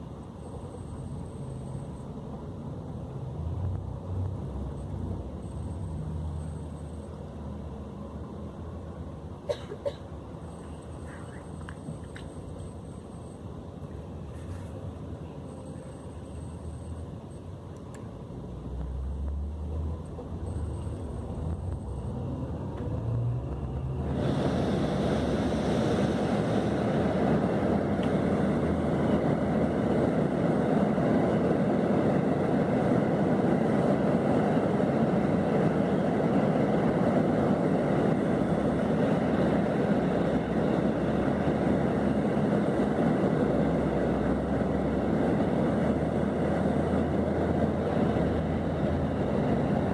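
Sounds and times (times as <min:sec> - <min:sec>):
coach engine running: 0:10.2 - 0:49.9.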